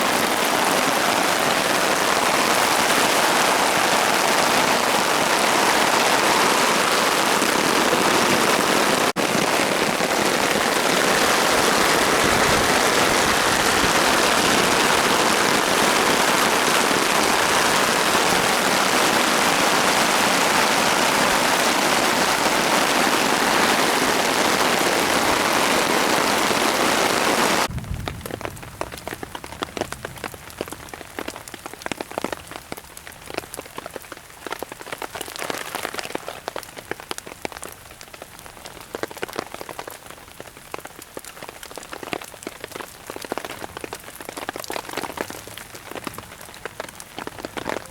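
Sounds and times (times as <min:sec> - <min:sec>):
rain hissing: 0:00.0 - 0:32.5
patter of raindrops: 0:00.0 - 0:47.9.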